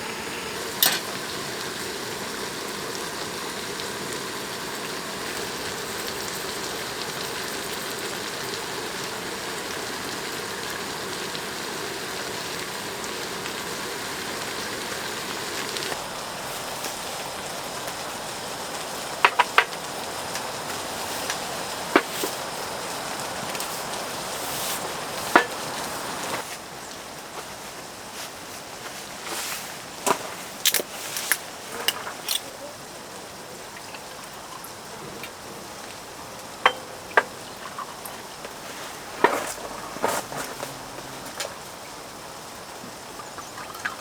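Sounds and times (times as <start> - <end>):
food sizzling on a griddle: 0.0 - 44.0
utensils knocking on a pan: 19.2 - 19.8, 25.3 - 25.6, 36.6 - 37.4.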